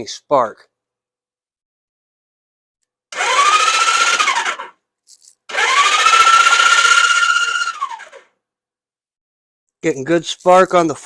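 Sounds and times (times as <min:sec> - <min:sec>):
electric starter cranking engine: 0:03.1 - 0:04.8, 0:05.4 - 0:08.3.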